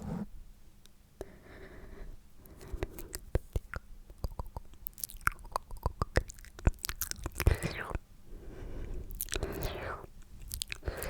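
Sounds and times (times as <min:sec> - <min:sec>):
wet mouth clicks and smacks: 0:03.1 - 0:08.0, 0:09.1 - 0:11.0.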